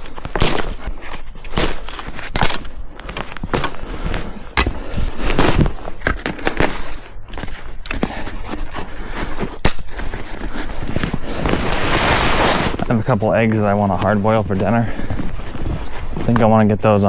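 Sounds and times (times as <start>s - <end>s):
crunches and scrapes in snow: 7.3s - 17.0s.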